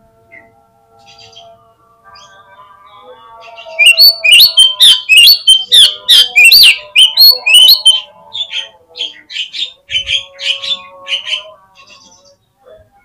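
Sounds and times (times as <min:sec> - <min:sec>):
bird calling harsh notes: 0:03.6 - 0:08.7.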